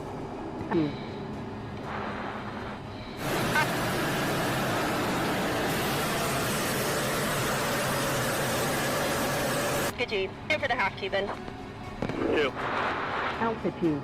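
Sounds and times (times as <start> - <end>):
jet aircraft rushing noise: 3.2 - 9.9.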